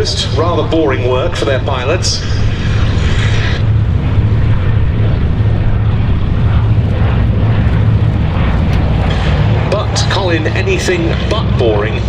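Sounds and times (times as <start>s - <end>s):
propeller aircraft flying by: 0.0s - 12.0s.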